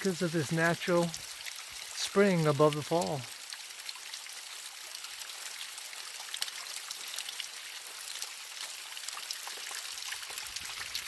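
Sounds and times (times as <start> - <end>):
stream trickling and splashing: 0.0 - 11.0
water dripping: 0.0 - 11.0.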